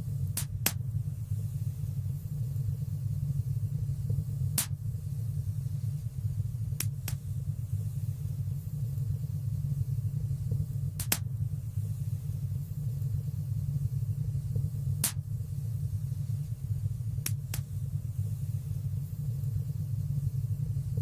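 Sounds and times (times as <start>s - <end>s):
fire rumbling in a fireplace: 0.0s - 21.0s
fire crackling pops: 0.2s - 1.1s, 4.1s - 5.0s, 6.7s - 7.5s, 10.8s - 11.5s, 14.9s - 15.4s, 17.1s - 18.0s.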